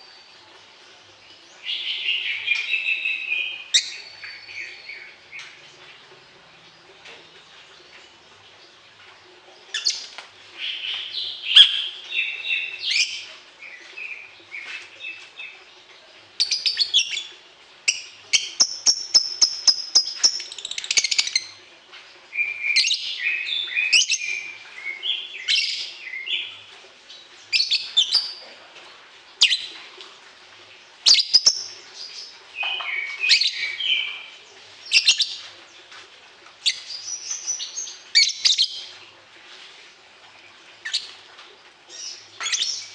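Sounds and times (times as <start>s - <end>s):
songbird singing: 0.0s - 28.5s, 30.7s - 36.0s, 36.6s - 39.1s, 41.9s - 42.9s.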